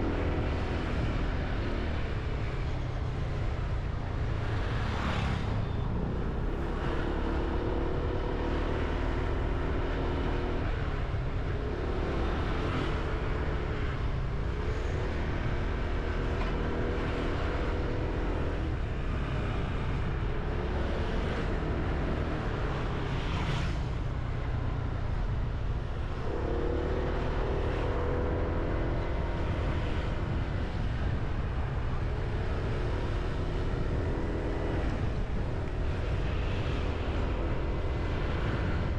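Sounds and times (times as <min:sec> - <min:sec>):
road rumble: 0:00.0 - 0:38.9
wind rush on microphone: 0:21.4 - 0:38.9.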